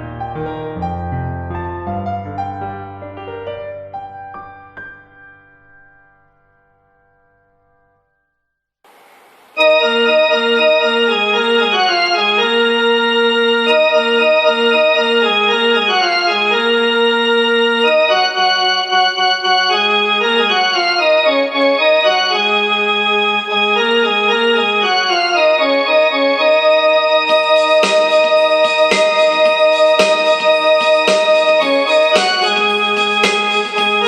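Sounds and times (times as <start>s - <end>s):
organ-like keyboard music: 9.6s - 34.0s.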